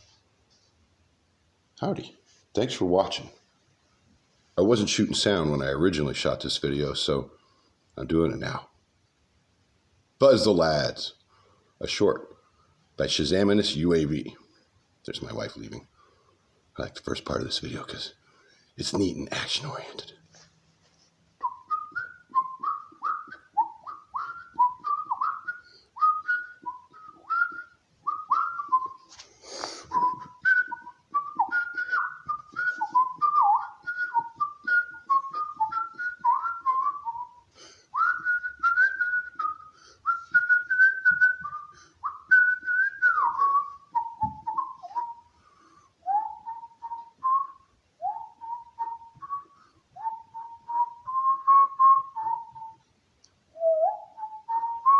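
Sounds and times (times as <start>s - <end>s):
man whistling a tune: 21.4s - 52.9s, 53.5s - 54.9s
puff of breath: 29.2s - 30.0s.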